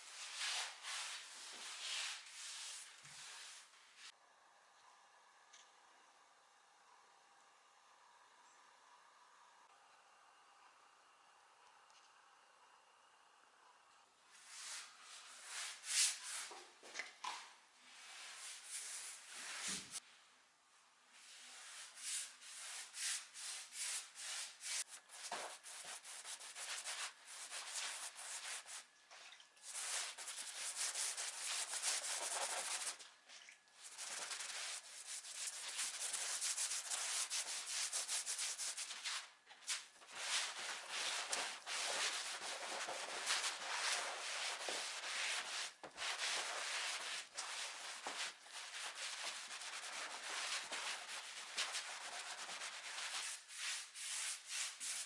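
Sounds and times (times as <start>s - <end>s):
sandpaper rubbing on wood: 33.9s - 39.0s.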